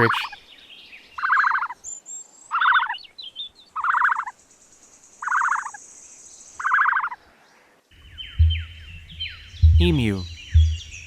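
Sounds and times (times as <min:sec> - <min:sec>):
bird gobbling calls: 0:08.0 - 0:11.0.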